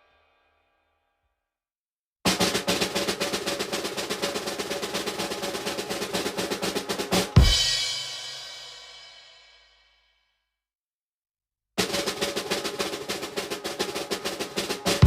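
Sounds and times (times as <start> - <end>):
snare drum roll: 2.3 - 9.4, 11.8 - 15.0.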